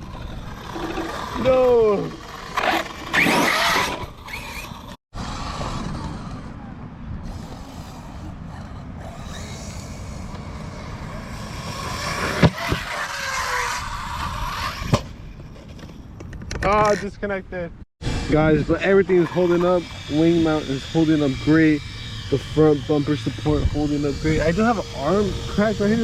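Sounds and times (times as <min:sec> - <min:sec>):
electric motor whine: 0:00.0 - 0:15.0, 0:18.0 - 0:26.0
toy truck tyres rumbling: 0:00.0 - 0:17.0.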